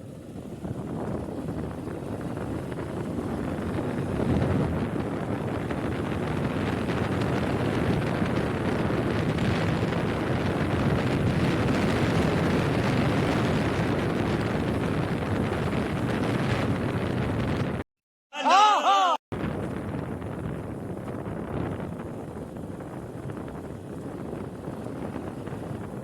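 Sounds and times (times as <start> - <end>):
wind buffeting microphone: 0.0 - 17.8, 19.3 - 26.0.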